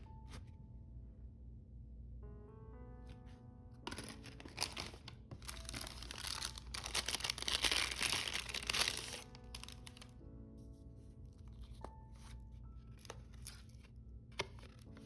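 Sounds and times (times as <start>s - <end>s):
soft background music: 0.0s - 15.0s
packaging crinkling and tearing: 3.9s - 10.1s.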